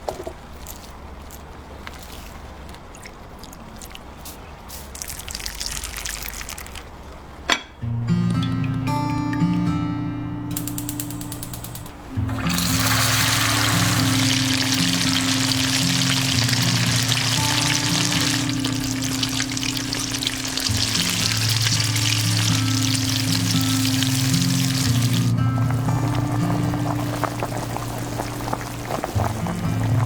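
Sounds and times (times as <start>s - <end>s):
background music: 7.9s - 30.0s
food sizzling in a pan: 12.4s - 30.0s.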